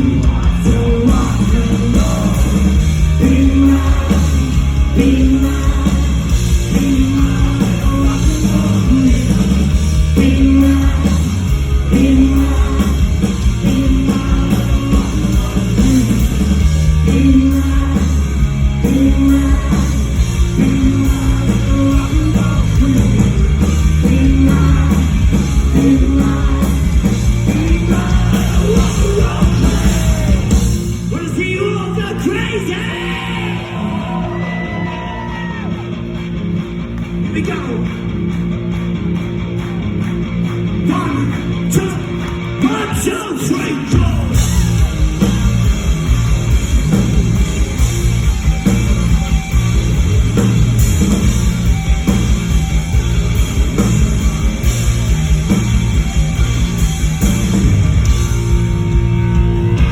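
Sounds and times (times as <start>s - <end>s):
voices singing and yelling: 0.0s - 35.9s, 40.8s - 46.7s
live rock band playing: 0.0s - 59.9s.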